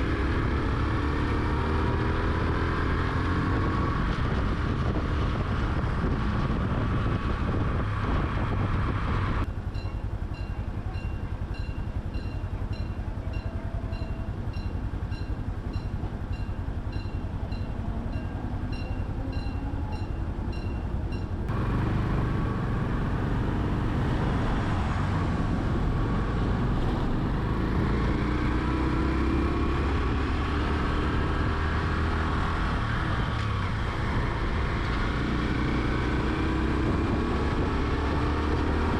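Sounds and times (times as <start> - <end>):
motorcycle engine running: 0.0 - 38.9
wind and road noise: 0.0 - 38.9.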